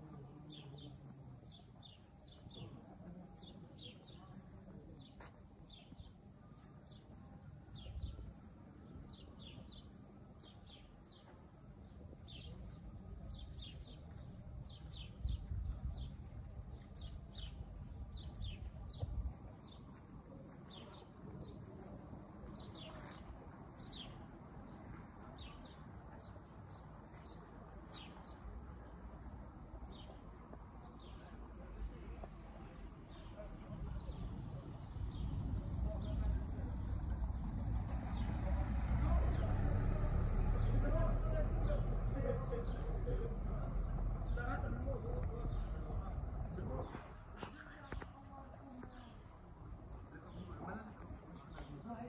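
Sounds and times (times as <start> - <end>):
small birds chirping: 0.0 - 39.6.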